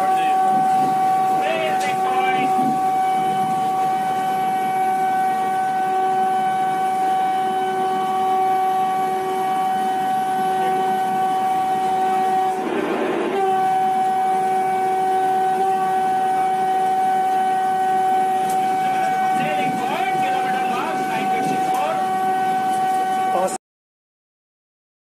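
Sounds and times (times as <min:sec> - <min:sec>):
steady whine: 0:00.0 - 0:23.6
train running noise: 0:00.0 - 0:23.6
short rush of noise: 0:12.5 - 0:13.5.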